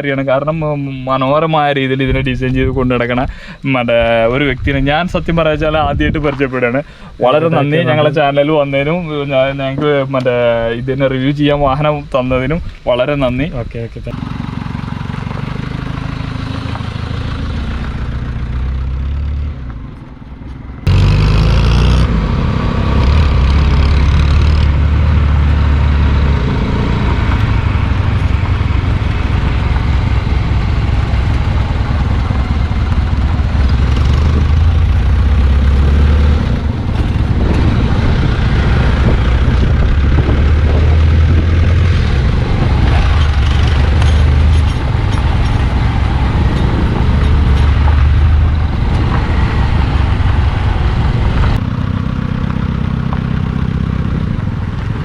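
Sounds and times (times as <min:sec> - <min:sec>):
diesel engine running: 0:14.1 - 0:55.0.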